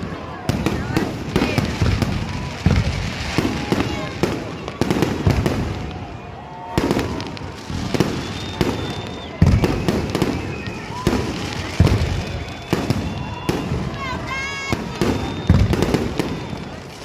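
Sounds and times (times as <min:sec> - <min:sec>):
faint whistling fireworks: 0:00.0 - 0:17.0
fireworks bangs and crackles: 0:00.0 - 0:17.0.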